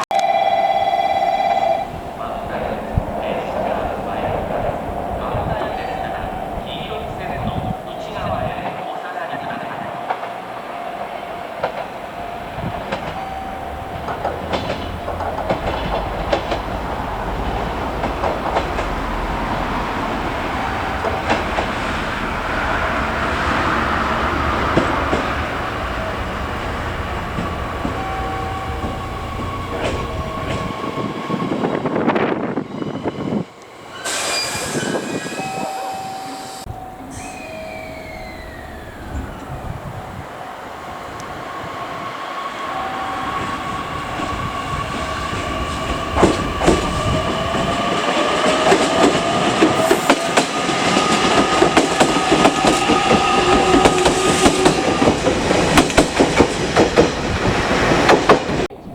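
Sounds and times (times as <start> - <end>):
short high tones: 0.0 - 2.6, 33.9 - 39.8
electric train running on rails: 0.0 - 58.9
wheels clattering over rail joints: 2.0 - 30.8, 42.8 - 58.7.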